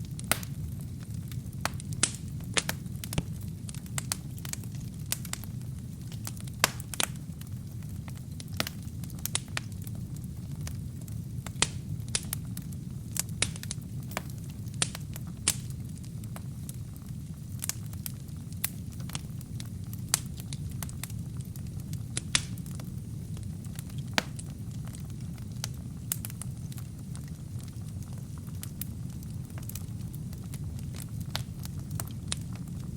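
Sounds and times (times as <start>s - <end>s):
wood fire burning: 0.0s - 32.9s.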